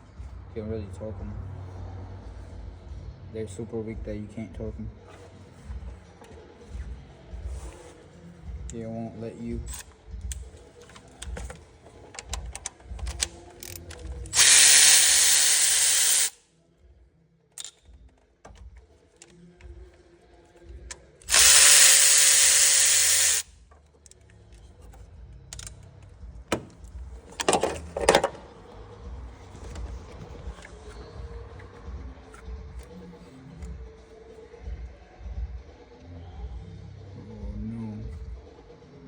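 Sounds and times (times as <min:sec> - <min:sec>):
tools clicking and knocking: 0:09.7 - 0:16.3, 0:17.6 - 0:19.4, 0:20.9 - 0:28.5
power tool running: 0:14.3 - 0:16.4, 0:21.3 - 0:23.5.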